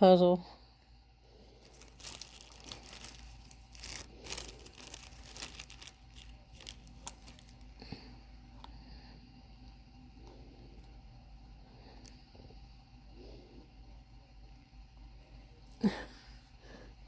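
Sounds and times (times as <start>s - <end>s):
craft materials crinkling: 1.5s - 7.9s.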